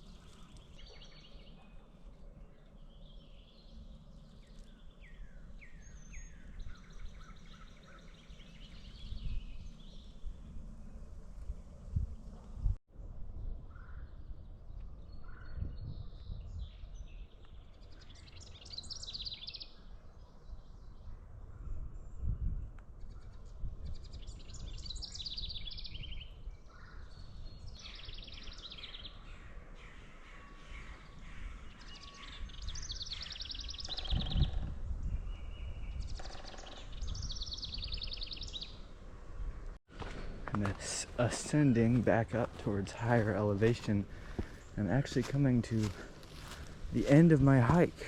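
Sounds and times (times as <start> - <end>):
songbird trilling: 2.5 - 10.3, 18.0 - 19.8, 23.1 - 38.9.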